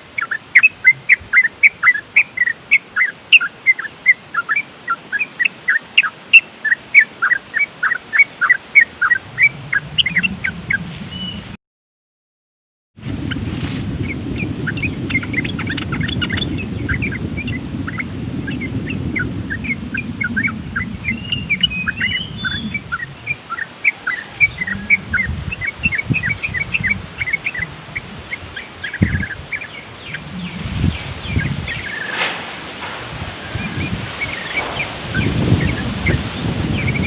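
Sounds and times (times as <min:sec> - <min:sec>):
low wind rumble: 0:00.0 - 0:11.6, 0:13.0 - 0:37.0
bulbul chattering chirps: 0:00.2 - 0:11.3, 0:14.1 - 0:32.2.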